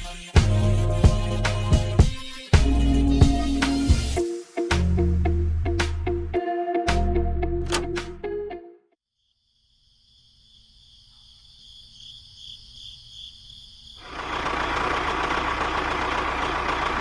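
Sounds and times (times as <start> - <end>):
music: 0.0 - 9.0
engine noise with low rumble: 14.0 - 17.0.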